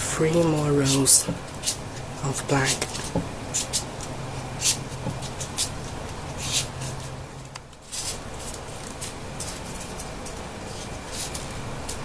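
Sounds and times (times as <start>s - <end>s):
paper rustling and crackling: 7.8s - 12.0s.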